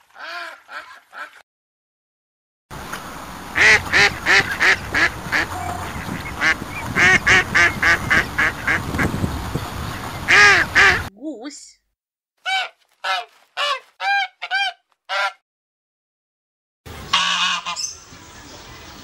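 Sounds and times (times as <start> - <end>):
ducks quacking: 0.1 - 1.4, 3.6 - 9.2, 9.8 - 11.1, 12.5 - 15.4, 17.1 - 17.9.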